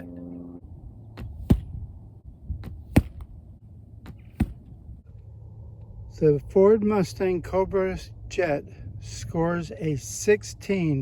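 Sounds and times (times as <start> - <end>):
low steady hum: 0.0 - 11.0
arrow striking target: 1.2 - 1.8, 2.6 - 3.4, 4.0 - 4.8.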